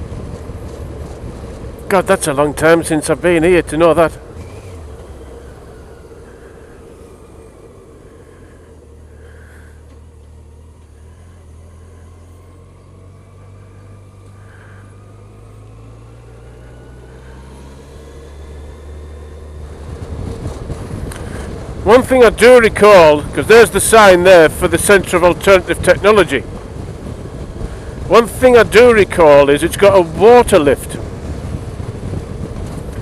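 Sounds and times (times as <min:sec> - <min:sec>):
motorcycle engine running: 0:00.0 - 0:24.4
road and wind noise: 0:00.0 - 0:33.0.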